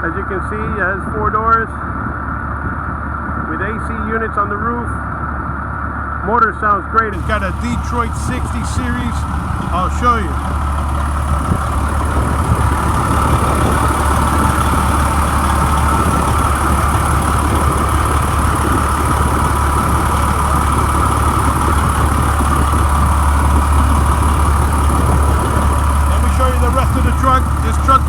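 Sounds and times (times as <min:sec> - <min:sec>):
diesel engine idling: 0:07.1 - 0:28.0.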